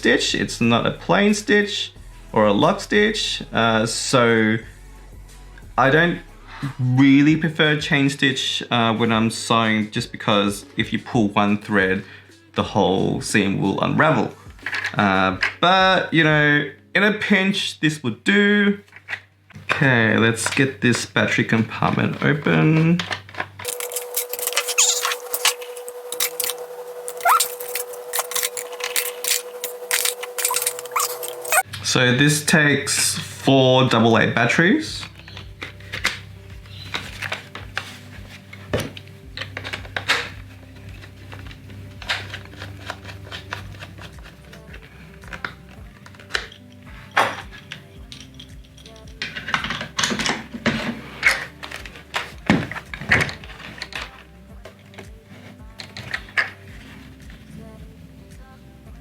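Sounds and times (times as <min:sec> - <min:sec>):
background music: 0:00.0 - 0:59.0
batteries clicking into plastic: 0:23.0 - 0:31.7, 0:39.4 - 0:50.4
plastic clicks and rattles: 0:38.5 - 0:55.1.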